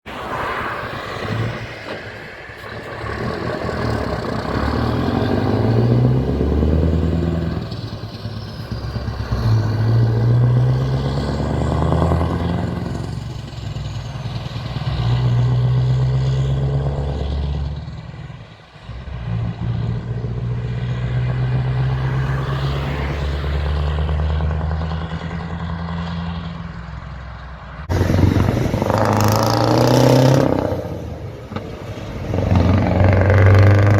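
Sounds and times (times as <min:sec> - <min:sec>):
diesel truck engine pulling hard: 0:00.1 - 0:33.9.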